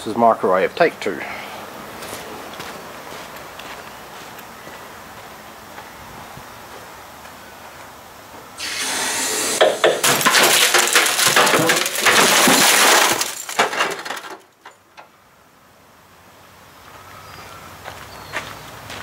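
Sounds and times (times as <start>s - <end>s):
microwave oven being crushed: 9.6s - 14.5s.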